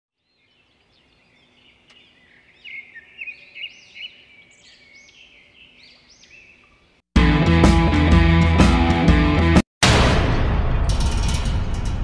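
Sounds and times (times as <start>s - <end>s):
birds chirping: 0.2s - 7.0s.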